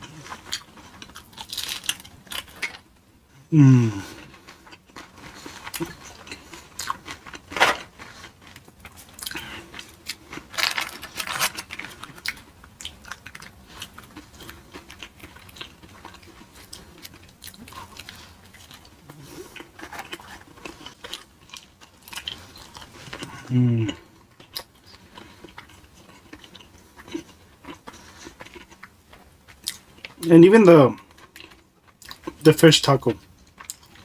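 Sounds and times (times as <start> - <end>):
chewing and crunching food: 0.0 - 3.0, 3.7 - 34.0.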